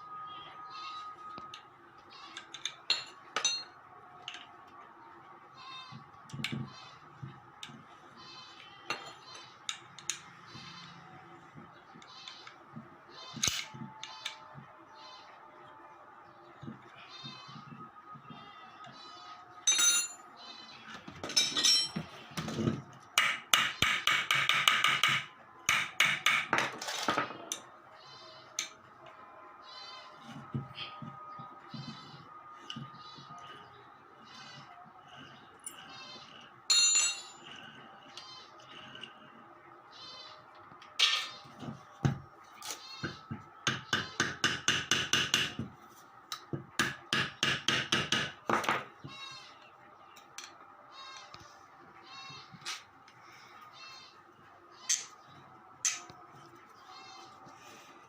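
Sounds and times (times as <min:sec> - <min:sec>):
hammer striking metal: 0:02.9 - 0:03.7, 0:19.7 - 0:20.2, 0:23.2 - 0:26.6, 0:36.7 - 0:37.4.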